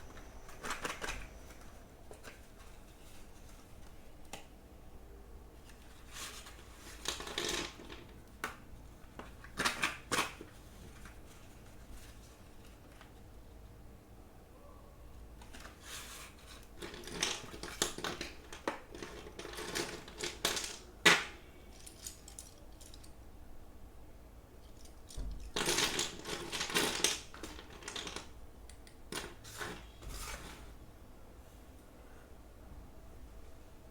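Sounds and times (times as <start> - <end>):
pencils and packaging rattling: 0.0 - 4.3, 5.6 - 13.3, 15.4 - 23.2, 24.6 - 30.8.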